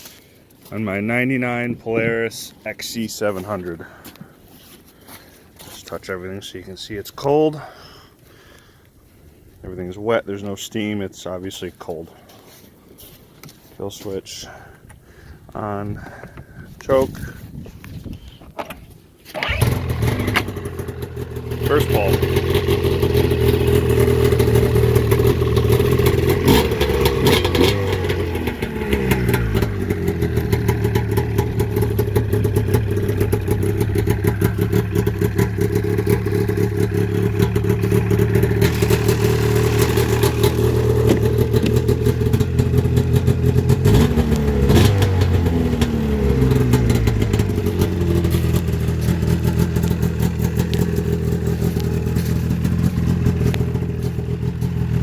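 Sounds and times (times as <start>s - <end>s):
snowmobile engine idling and revving: 19.4s - 55.0s.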